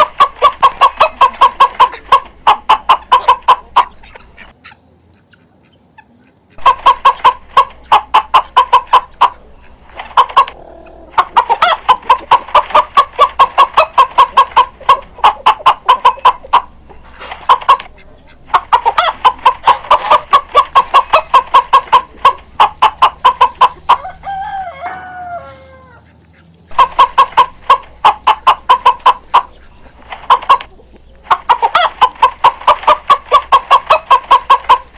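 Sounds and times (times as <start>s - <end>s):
chickens clucking: 0.0s - 34.9s
rooster crowing: 23.9s - 26.0s.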